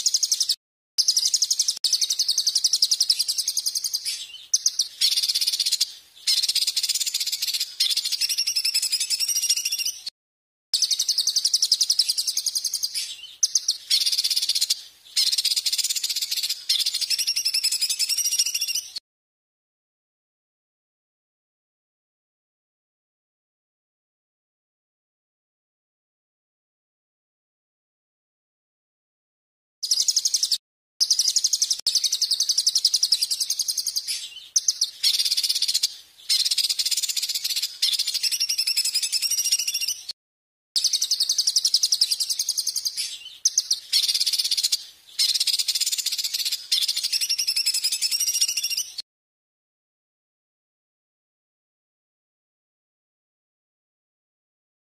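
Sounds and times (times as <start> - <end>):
songbird trilling: 0.0 - 10.1, 10.8 - 19.0, 29.8 - 40.1, 40.8 - 49.0.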